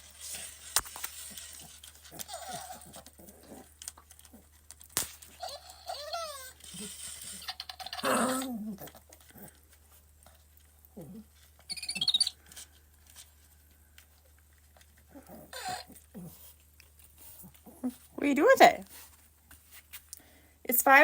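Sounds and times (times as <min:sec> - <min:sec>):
puppy playing: 0:00.0 - 0:20.1
robotic toy chirps and squeaks: 0:11.7 - 0:12.4.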